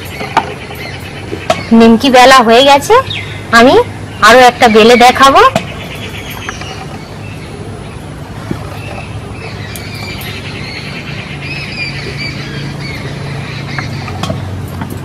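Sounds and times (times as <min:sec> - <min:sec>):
birds chirping and squawking: 0:00.0 - 0:15.0
steady low hum: 0:00.0 - 0:15.0.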